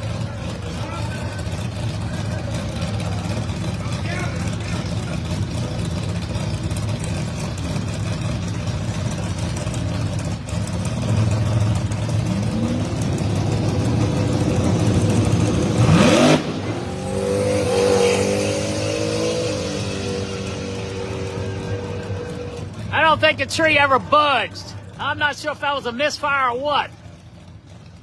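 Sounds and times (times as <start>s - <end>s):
race car engines running rough: 0.0s - 28.0s
engine revving in a rising sweep: 11.1s - 22.6s.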